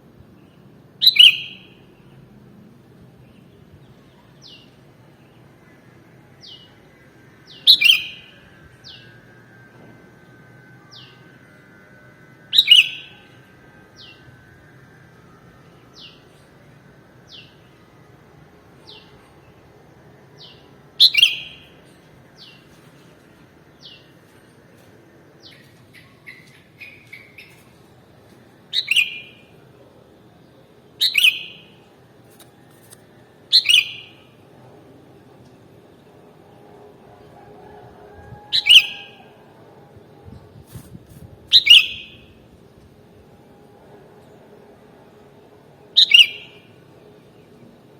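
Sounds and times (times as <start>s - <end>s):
bird calling loud and bright: 1.0s - 1.8s, 7.5s - 9.1s, 28.7s - 29.4s, 33.5s - 34.2s, 38.4s - 39.4s, 41.5s - 42.3s, 46.0s - 46.7s.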